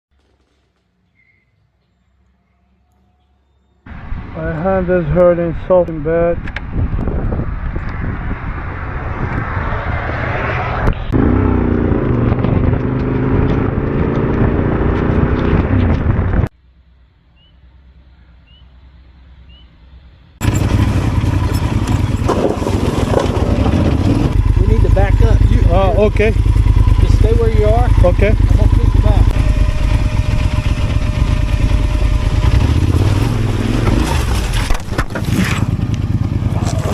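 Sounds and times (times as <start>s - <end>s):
motorcycle engine: 6.4s - 16.5s, 20.4s - 36.9s
sharp crunching or scraping: 20.4s - 36.9s.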